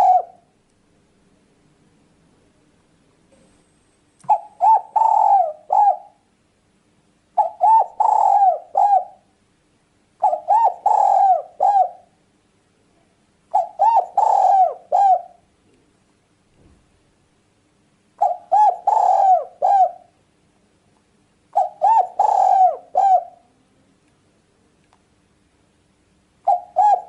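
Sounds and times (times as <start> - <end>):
dove cooing: 0.0 - 0.5, 4.3 - 6.3, 7.4 - 9.3, 10.2 - 12.1, 13.5 - 15.5, 18.2 - 20.2, 21.5 - 23.5, 26.4 - 27.0.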